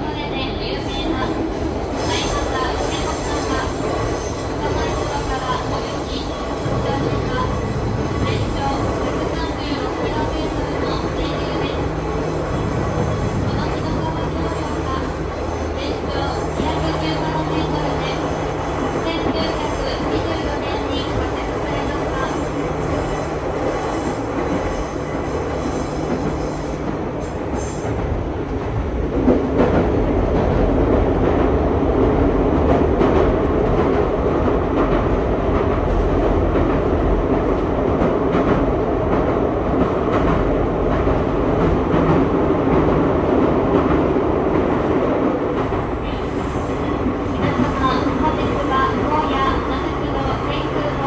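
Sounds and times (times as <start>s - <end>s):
train wheels rumbling on rails: 0.0s - 51.0s.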